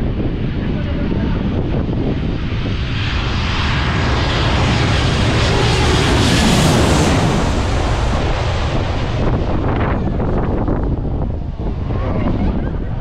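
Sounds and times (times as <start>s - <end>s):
airliner engines passing: 0.0s - 13.0s.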